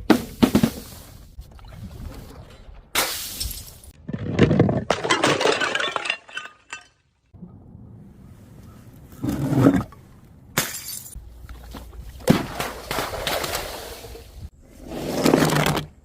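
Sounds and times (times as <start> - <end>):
glass shattering: 3.0 - 4.0, 4.9 - 7.2, 10.6 - 11.2.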